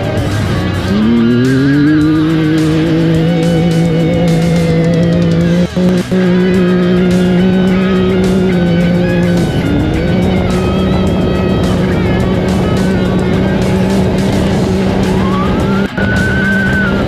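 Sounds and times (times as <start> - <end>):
music playing: 0.0 - 17.0
race vehicle engine running: 0.0 - 17.0.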